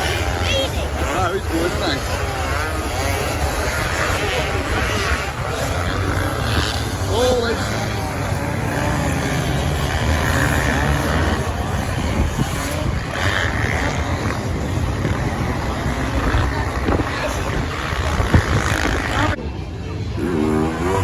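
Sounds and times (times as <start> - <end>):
wind buffeting microphone: 0.0 - 19.8
off-road motorbike engines racing: 0.0 - 21.0.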